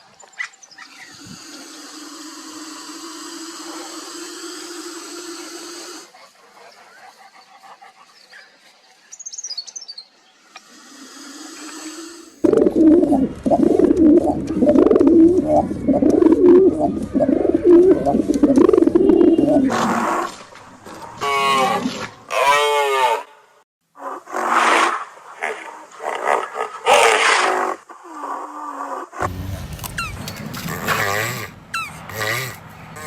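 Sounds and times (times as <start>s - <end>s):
steady pitched animal call: 10.5s - 20.3s, 30.0s - 33.0s
rough wavering animal call: 11.0s - 20.2s, 30.0s - 33.0s.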